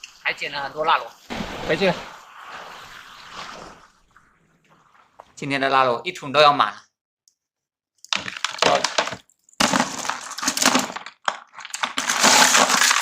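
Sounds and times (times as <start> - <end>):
snail shells clattering in bucket: 8.1 - 13.0.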